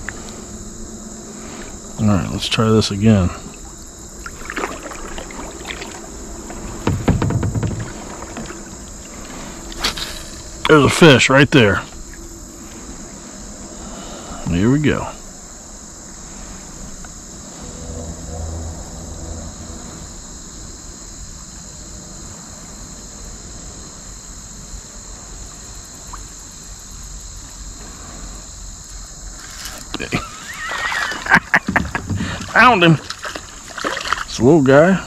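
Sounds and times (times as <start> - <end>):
crickets and insects chirping: 0.0 - 35.0
water splashing against kayak: 3.4 - 10.7, 29.3 - 34.5.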